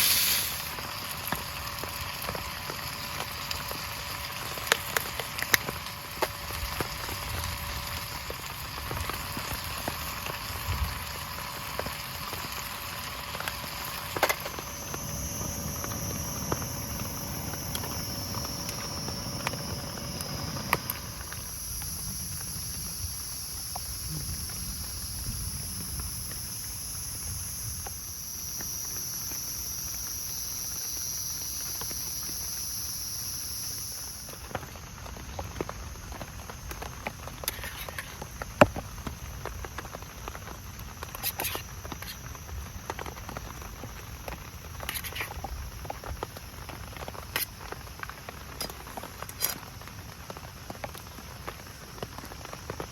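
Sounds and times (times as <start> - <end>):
thin high whine: 0.0 - 49.6
steady rain falling: 0.0 - 52.9.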